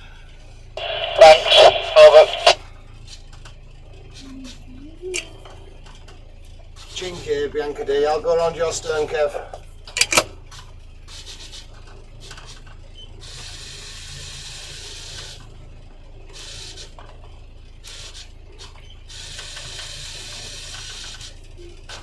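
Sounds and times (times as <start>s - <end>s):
steady low hum: 0.0s - 3.0s.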